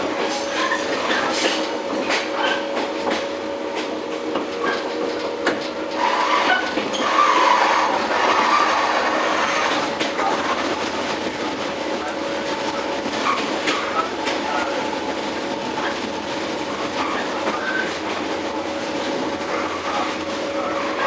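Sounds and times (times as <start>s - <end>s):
train running gear hum: 0.0s - 21.0s
wheels clicking over rail joints: 0.9s - 11.8s.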